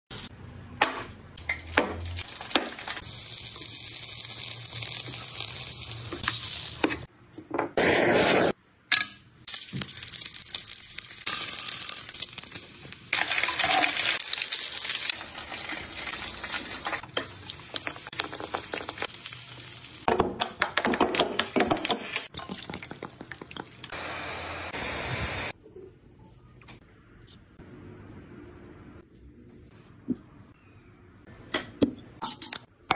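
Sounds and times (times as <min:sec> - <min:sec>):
fat sizzling in a pan: 0:02.1 - 0:07.1, 0:09.5 - 0:20.1.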